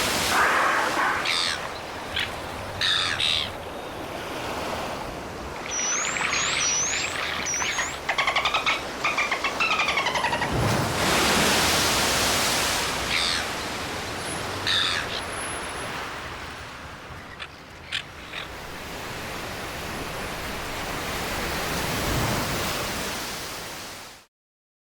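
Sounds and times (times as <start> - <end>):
ocean surf washing: 0.0 - 24.2
gull calling: 0.2 - 3.6, 5.7 - 10.6, 13.0 - 13.6, 14.6 - 15.3.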